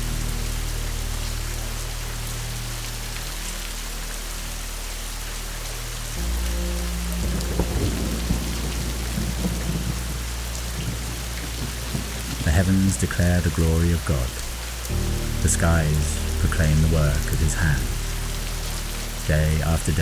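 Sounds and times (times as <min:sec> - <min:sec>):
low steady drone: 0:00.0 - 0:20.0
steady rain: 0:00.0 - 0:20.0
thunder rumbling: 0:06.2 - 0:13.5, 0:14.3 - 0:20.0.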